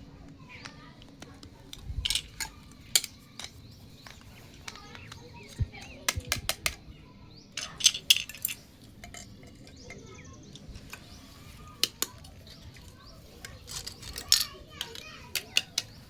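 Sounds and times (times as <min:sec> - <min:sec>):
plastic toy pieces clicking: 0:00.3 - 0:06.8, 0:07.6 - 0:11.1, 0:11.7 - 0:16.0.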